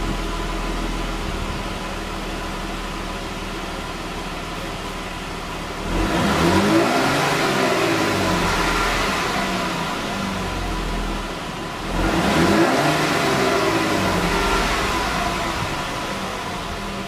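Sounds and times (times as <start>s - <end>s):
car engine revving: 5.5s - 17.0s.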